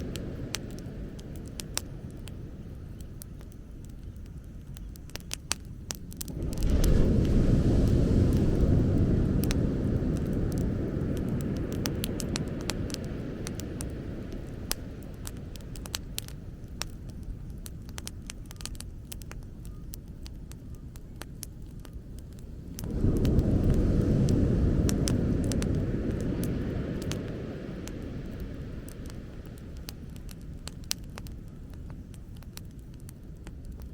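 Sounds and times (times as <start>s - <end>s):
bonfire crackling and popping: 0.0s - 33.9s
low rumble: 21.9s - 32.4s.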